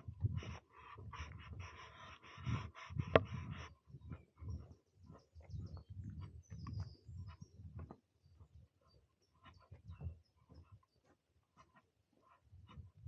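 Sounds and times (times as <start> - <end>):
footsteps on forest trail: 9.5 - 12.3.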